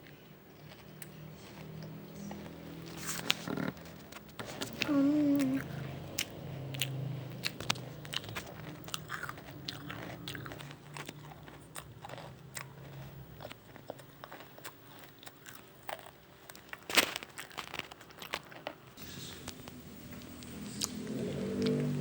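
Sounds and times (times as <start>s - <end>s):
crunching wafer cone: 6.2s - 22.0s.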